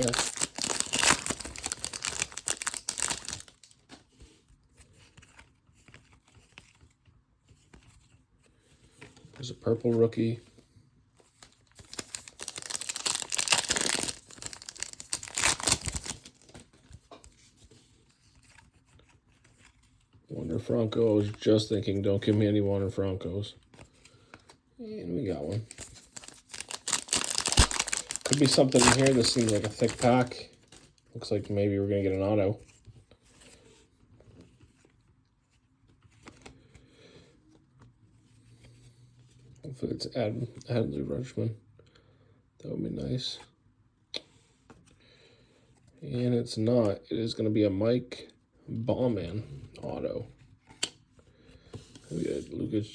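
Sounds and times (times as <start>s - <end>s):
wrapper tearing and crinkling: 0.0s - 3.8s, 11.4s - 16.6s, 25.5s - 30.8s
trading cards clicking and rustling: 0.0s - 4.0s, 11.4s - 17.4s, 25.4s - 30.9s.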